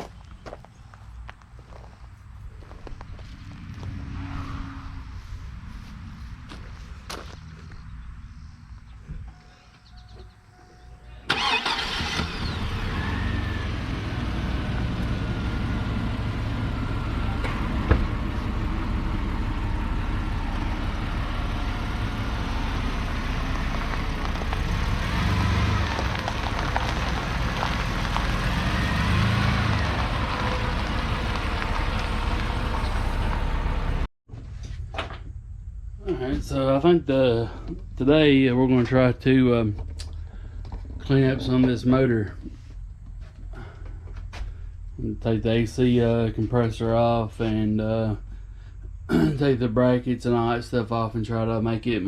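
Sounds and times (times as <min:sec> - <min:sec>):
pickup engine rumbling: 0:00.0 - 0:52.0.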